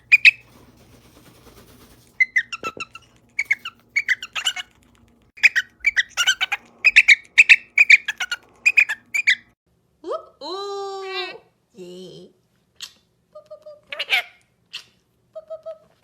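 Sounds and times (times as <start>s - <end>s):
bird chirping and squawking: 0.0s - 0.6s, 1.7s - 4.7s, 5.4s - 9.6s.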